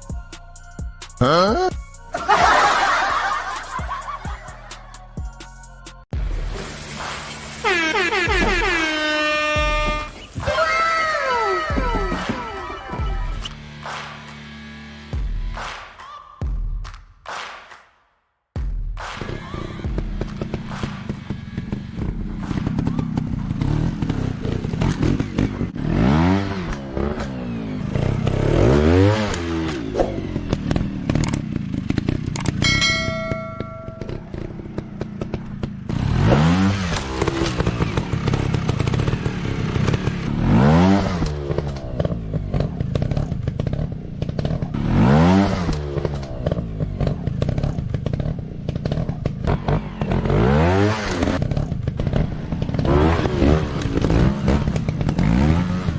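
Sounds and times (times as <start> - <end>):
dirt bike engines revving: 7.2 - 15.1, 19.2 - 55.9
short ringing tone: 32.6 - 34.5.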